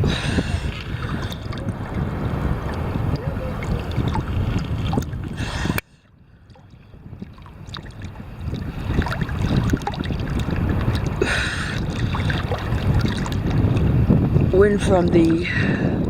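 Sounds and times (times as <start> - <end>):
choppy ocean water splashing: 0.0 - 16.0
wind buffeting microphone: 0.0 - 16.0.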